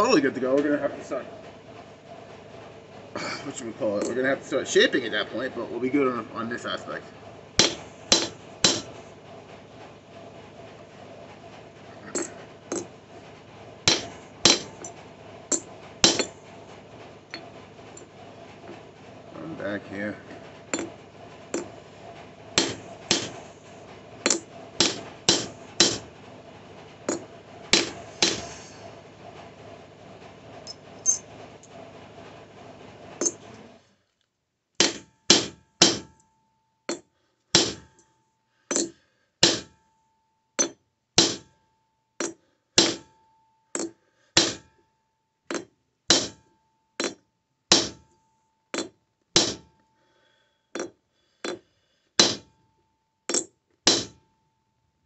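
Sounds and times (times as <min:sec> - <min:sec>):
hammer striking metal on anvil: 0:07.6 - 0:08.9, 0:13.9 - 0:14.8, 0:16.0 - 0:16.3, 0:22.6 - 0:23.4, 0:24.3 - 0:26.1, 0:27.8 - 0:28.5, 0:34.8 - 0:36.1, 0:37.6 - 0:37.8, 0:38.7 - 0:39.7, 0:40.6 - 0:41.5, 0:42.2 - 0:43.0, 0:43.8 - 0:44.7, 0:45.5 - 0:46.4, 0:47.0 - 0:48.0, 0:48.8 - 0:49.7, 0:52.2 - 0:52.5, 0:53.3 - 0:54.2.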